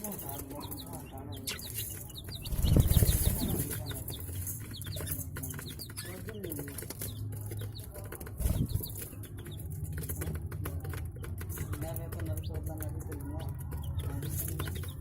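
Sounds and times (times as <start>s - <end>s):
budgerigars chirping: 0.2s - 9.7s.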